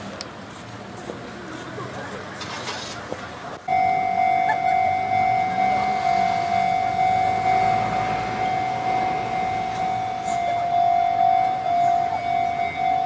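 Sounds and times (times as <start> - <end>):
level crossing alarm tone: 3.7 - 13.0.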